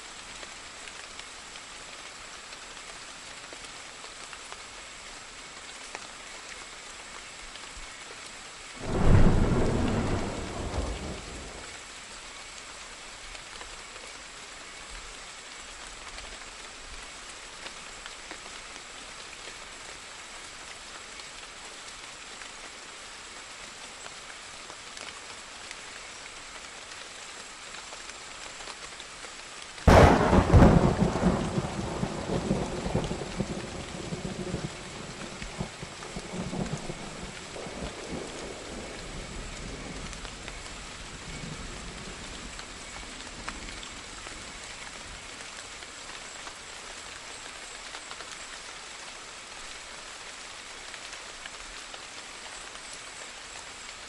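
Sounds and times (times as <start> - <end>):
steady rain: 0.0 - 54.0
thunderclaps: 8.8 - 11.7, 29.9 - 40.0.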